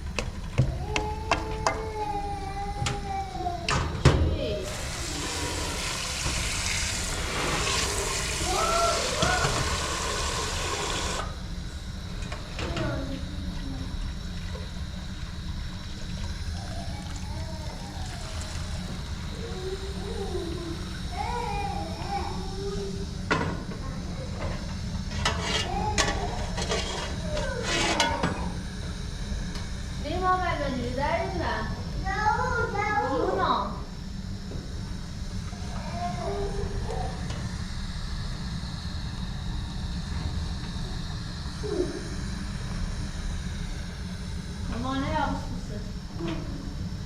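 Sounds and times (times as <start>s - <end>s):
tap running water: 4.6s - 11.4s, 12.1s - 22.2s.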